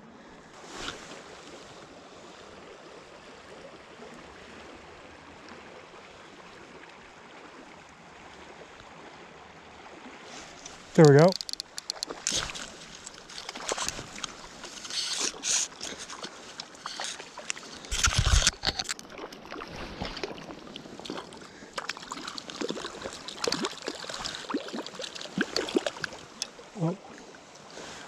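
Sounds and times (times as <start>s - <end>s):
river water splashing: 0.5s - 28.0s
small clicks: 10.6s - 19.0s.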